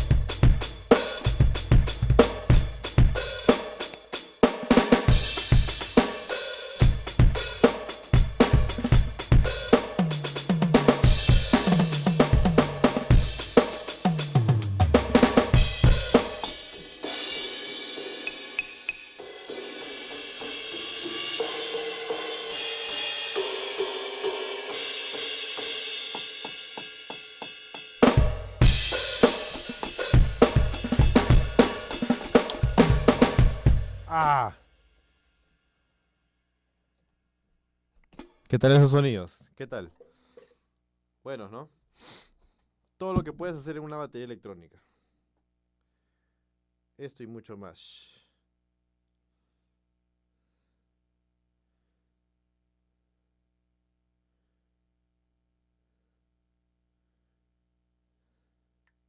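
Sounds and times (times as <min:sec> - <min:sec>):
electronic drum kit beat: 0:00.0 - 0:22.6, 0:28.0 - 0:34.5.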